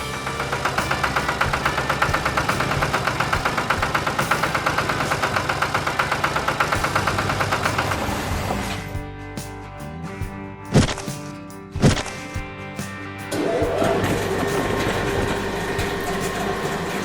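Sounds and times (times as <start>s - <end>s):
vehicle engine chugging: 0.0s - 9.1s.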